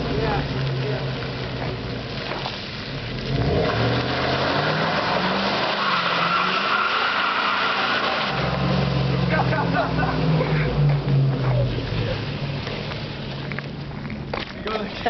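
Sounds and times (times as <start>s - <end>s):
tyres skidding: 0.0s - 15.0s
truck engine revving hard: 3.0s - 13.2s.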